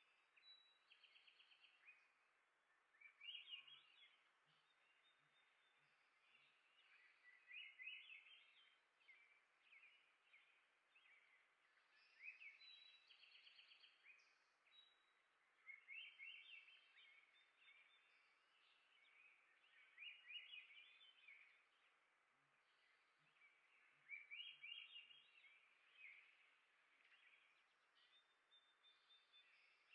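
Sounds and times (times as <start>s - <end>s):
quiet steady hiss: 0.0s - 29.9s
songbird singing faintly: 0.0s - 29.9s.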